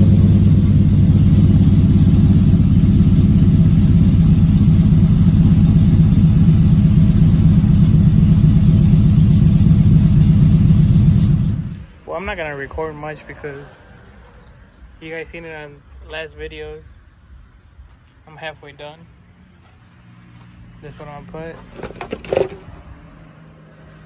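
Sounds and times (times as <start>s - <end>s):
truck engine idling lopey: 0.0s - 12.8s, 21.4s - 22.8s.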